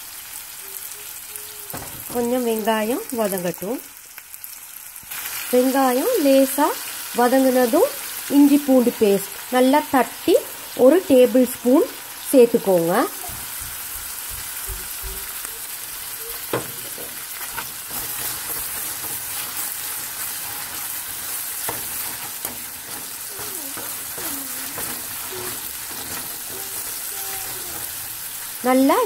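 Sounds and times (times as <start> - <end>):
onions sizzling in a pan: 0.0 - 29.0
metal spoon tapping a pan: 16.3 - 28.2.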